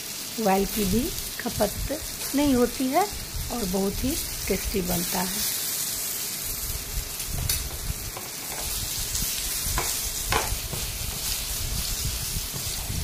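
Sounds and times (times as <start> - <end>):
eggplant slices sizzling in oil: 0.0 - 13.0.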